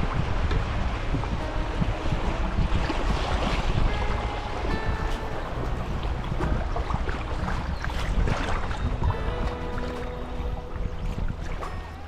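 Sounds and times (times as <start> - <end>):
faint background music: 0.0 - 12.0
river water: 0.0 - 12.0
wind on microphone: 0.0 - 12.0.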